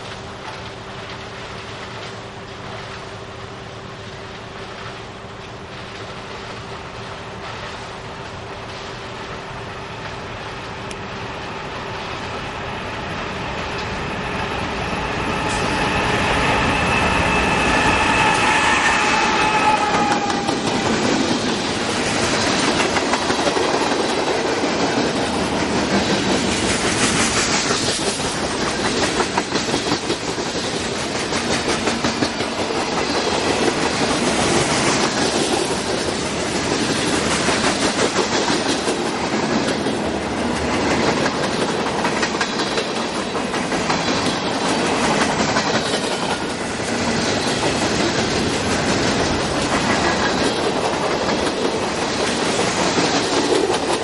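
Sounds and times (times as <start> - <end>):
train wheels clacking over rail joints: 13.7 - 54.0
locomotive horn blast: 15.5 - 21.0.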